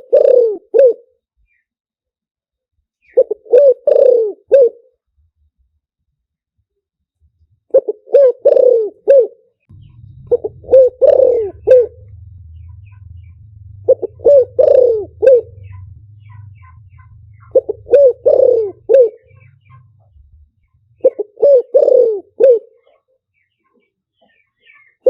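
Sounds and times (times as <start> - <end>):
dove cooing: 0.0 - 1.1, 3.1 - 4.9, 7.7 - 23.0
faint low hum: 9.7 - 22.4.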